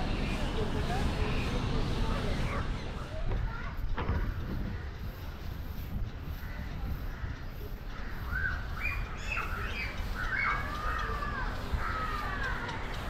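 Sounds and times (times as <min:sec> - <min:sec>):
bird calls gliding in pitch: 0:06.3 - 0:13.0.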